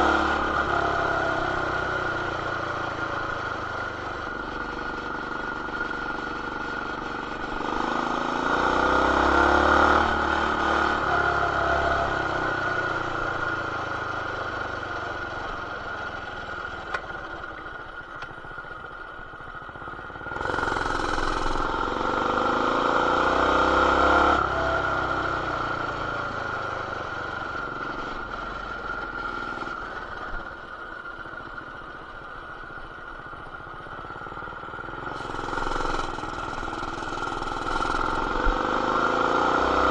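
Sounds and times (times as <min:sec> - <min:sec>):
mini bike engine revving: 0:07.4 - 0:12.6, 0:20.4 - 0:25.2, 0:35.0 - 0:39.9.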